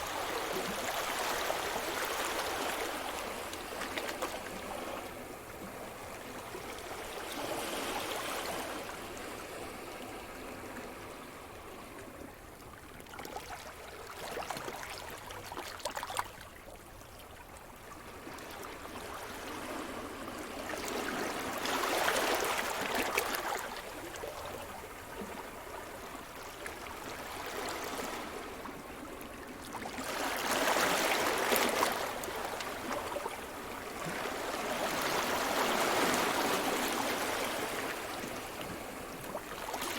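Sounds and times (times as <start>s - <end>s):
waves breaking on shore: 29.8s - 39.9s.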